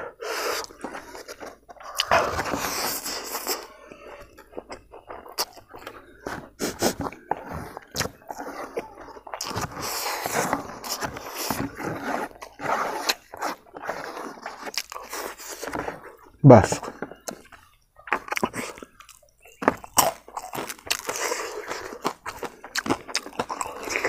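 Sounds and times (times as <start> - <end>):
noisy breaths: 0.0 - 17.3, 21.0 - 22.8
person chewing crunchy food: 0.0 - 24.0.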